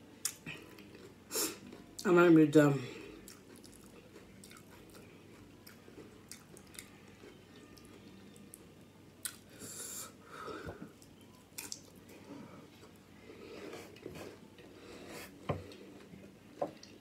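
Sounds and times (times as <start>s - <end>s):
wet chewing and mouth clicks: 3.3s - 5.0s.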